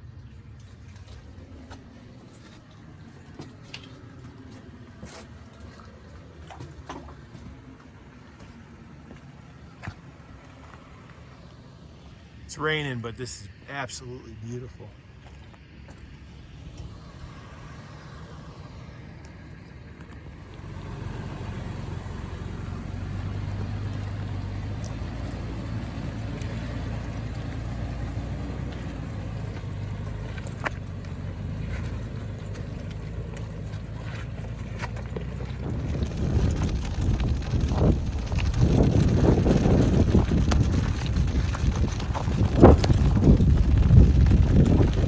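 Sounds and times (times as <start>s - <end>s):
vehicle engine droning: 0.0s - 45.0s
wind buffeting microphone: 35.3s - 45.0s.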